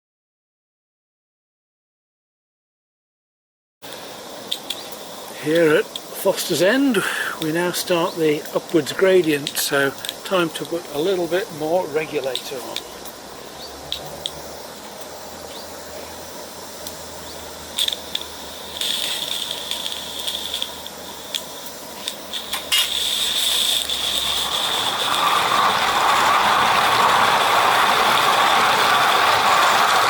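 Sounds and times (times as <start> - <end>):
steam locomotive hissing: 3.8 - 30.0.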